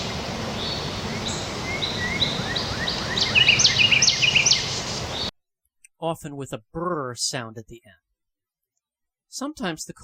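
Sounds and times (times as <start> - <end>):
outdoor background noise: 0.0 - 5.3
wren singing: 0.5 - 5.3.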